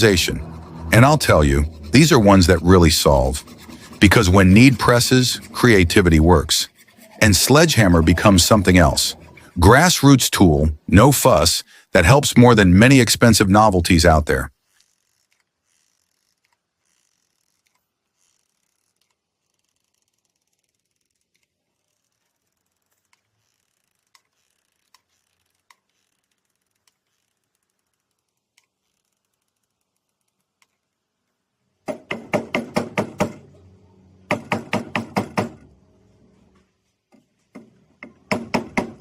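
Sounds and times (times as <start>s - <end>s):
loud rapid knocking: 38.3s - 39.0s.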